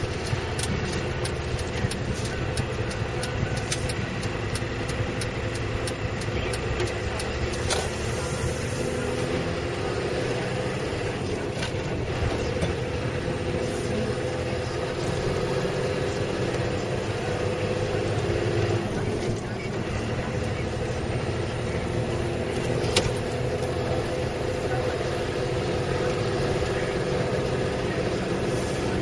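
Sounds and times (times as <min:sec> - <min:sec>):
road noise: 0:00.0 - 0:29.0
truck diesel engine running: 0:00.0 - 0:29.0.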